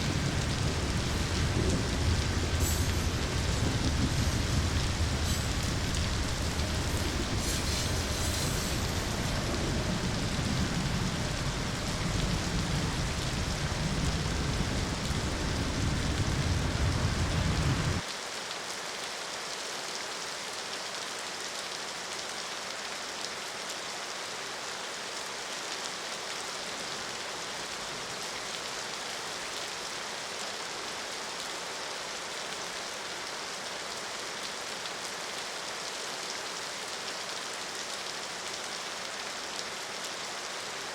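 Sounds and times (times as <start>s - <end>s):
deep low rumble: 0.0s - 18.0s
rain hissing: 0.0s - 18.1s.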